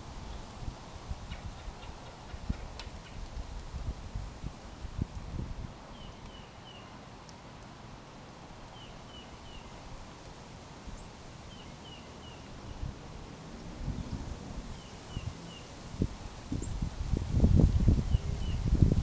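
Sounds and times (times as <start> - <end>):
outdoor background noise: 0.0 - 19.0
songbird chirping: 8.7 - 9.8, 11.0 - 12.9.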